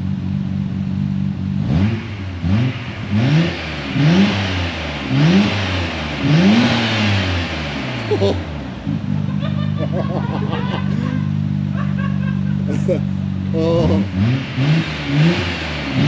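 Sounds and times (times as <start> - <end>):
car engine idling and revving: 0.0 - 16.0.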